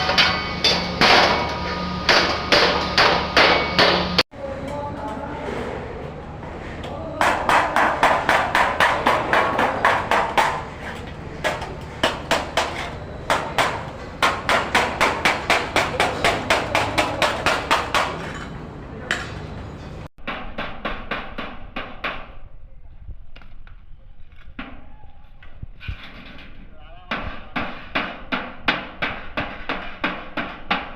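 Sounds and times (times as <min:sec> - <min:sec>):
hammer on sheet metal: 0:00.0 - 0:04.3, 0:07.1 - 0:19.4, 0:20.2 - 0:22.4, 0:27.1 - 0:30.9.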